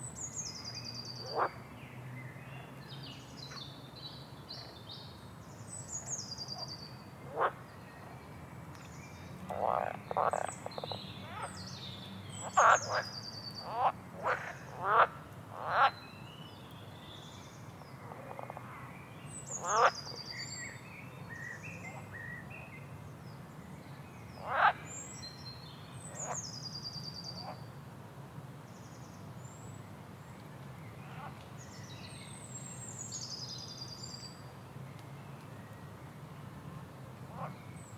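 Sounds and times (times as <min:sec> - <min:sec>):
frogs croaking: 0:01.2 - 0:01.6, 0:07.3 - 0:07.6, 0:09.5 - 0:11.5, 0:12.4 - 0:16.0, 0:19.6 - 0:20.1, 0:24.4 - 0:24.8.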